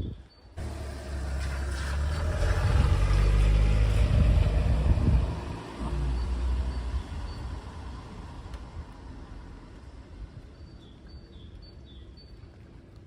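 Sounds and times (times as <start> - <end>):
vehicle passing: 0.6 - 8.3.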